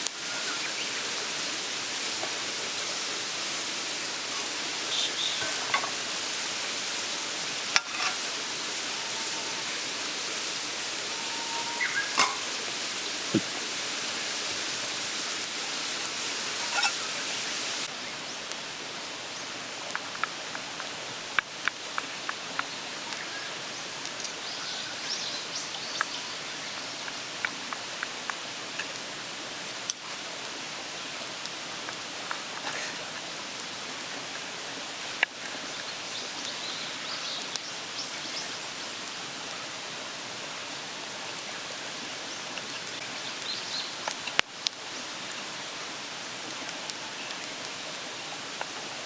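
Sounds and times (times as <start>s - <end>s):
mountain stream rushing: 0.0s - 49.0s
small clicks and crackles: 19.8s - 23.3s, 26.8s - 30.2s, 42.5s - 44.8s.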